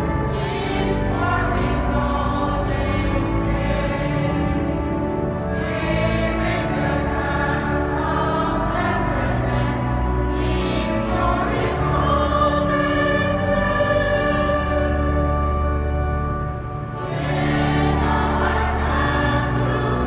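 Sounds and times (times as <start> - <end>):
choir singing chords: 0.0 - 20.0
low organ bass: 0.0 - 20.0.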